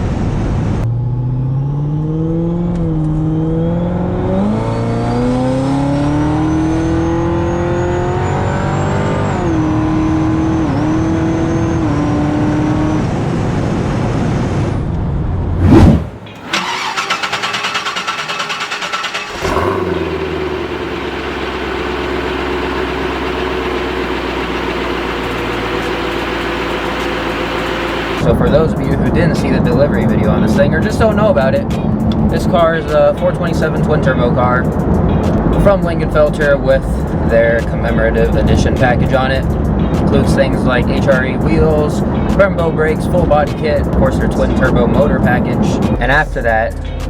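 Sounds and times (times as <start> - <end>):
supercharger whine: 0.0 - 28.6
car engine accelerating: 0.0 - 46.0.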